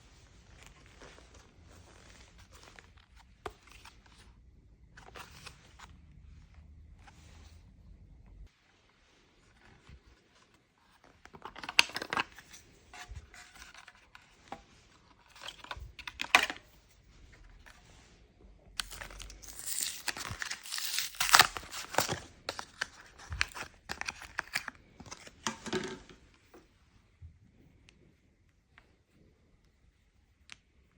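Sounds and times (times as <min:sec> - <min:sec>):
hands handling plastic light: 0:09.4 - 0:18.1, 0:18.7 - 0:26.7.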